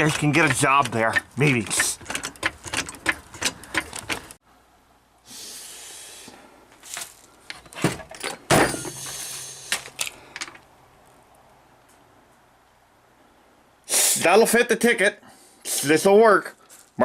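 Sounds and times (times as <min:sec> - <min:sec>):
hard objects knocking and clattering: 0:00.0 - 0:04.4
short hissing rush: 0:08.9 - 0:09.9, 0:13.8 - 0:14.3.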